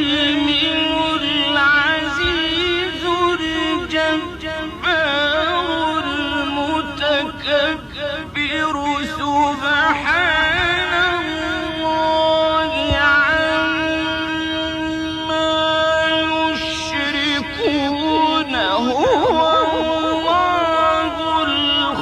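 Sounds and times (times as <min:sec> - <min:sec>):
man reciting melodically: 0:00.0 - 0:22.0.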